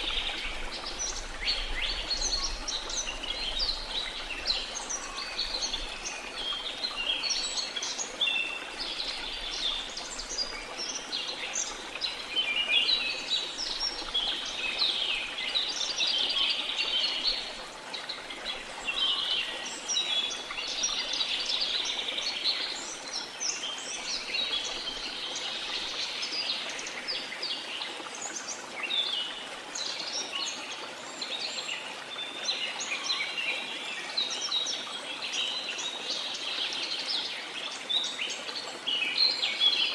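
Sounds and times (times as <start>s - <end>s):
rush of falling water: 0.0s - 39.9s.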